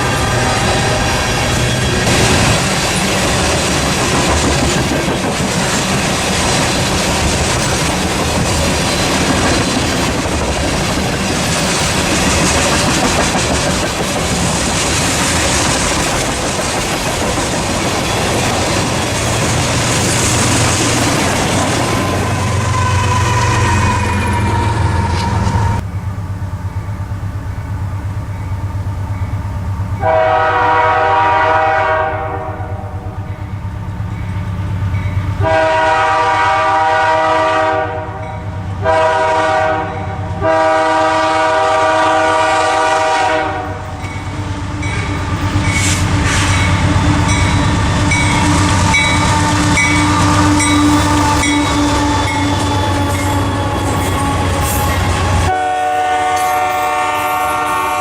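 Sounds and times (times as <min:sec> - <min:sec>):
locomotive horn blasts: 0:00.0 - 0:02.2, 0:22.0 - 0:25.8, 0:30.0 - 0:33.0, 0:35.4 - 0:44.9, 0:48.0 - 0:58.0
train rumbling past: 0:00.0 - 0:58.0
wheels clacking over rail joints: 0:00.6 - 0:25.8.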